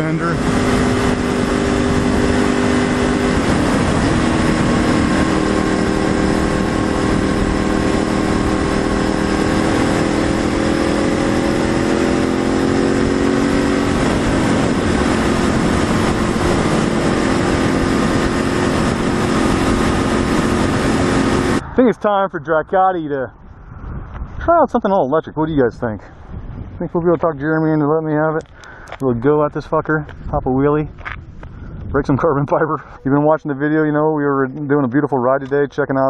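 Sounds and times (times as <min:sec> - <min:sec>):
motorcycle engine running: 0:00.0 - 0:21.7
wind rushing: 0:00.0 - 0:27.7, 0:29.7 - 0:32.3.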